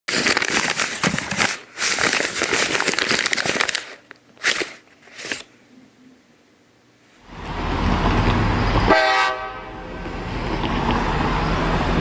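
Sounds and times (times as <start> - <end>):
paper crinkling: 0.1 - 5.5.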